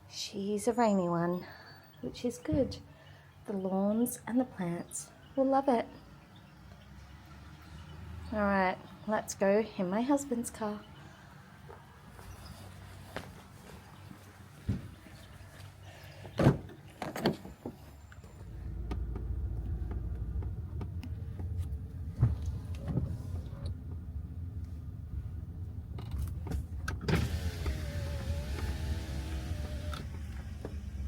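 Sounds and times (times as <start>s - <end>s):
car engine rumbling: 16.6s - 31.0s
knocks and clunks in car: 18.7s - 24.1s.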